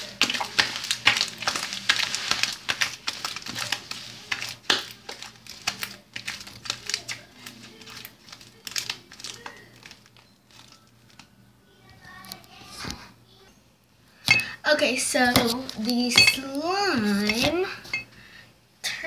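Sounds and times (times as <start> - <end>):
slime clicks and crackles: 0.0 - 11.3.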